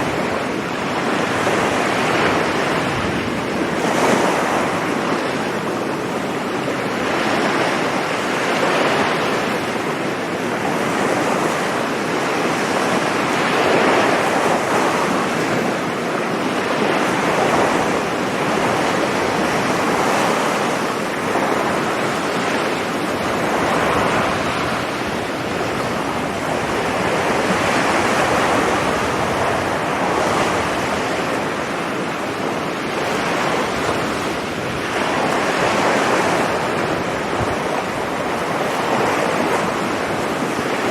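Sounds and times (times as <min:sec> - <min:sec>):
surf breaking on a beach: 0:00.0 - 0:40.9
wind on microphone: 0:00.0 - 0:40.9.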